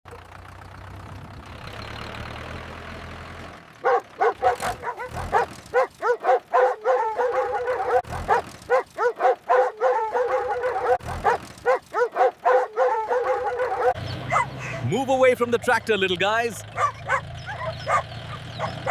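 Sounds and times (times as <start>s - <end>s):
puppies yipping and barking: 3.8s - 15.0s, 16.6s - 18.9s.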